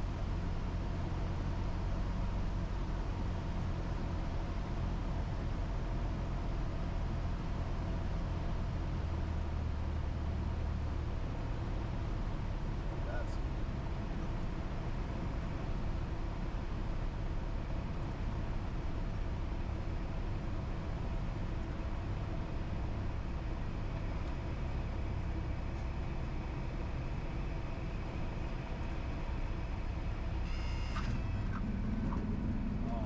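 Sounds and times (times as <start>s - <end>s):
propeller plane engine droning: 10.4s - 33.0s
brief higher tone: 30.4s - 31.4s.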